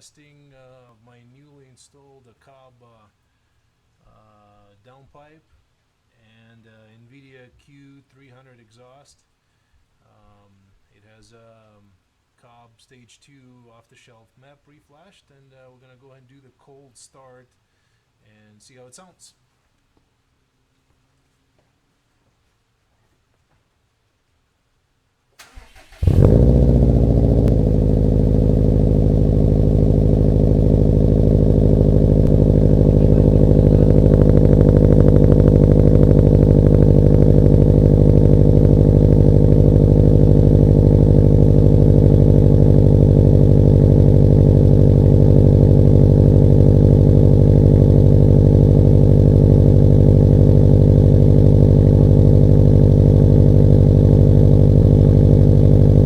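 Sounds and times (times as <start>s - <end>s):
car engine cranking: 25.4s - 56.0s
car engine idling: 25.5s - 56.0s.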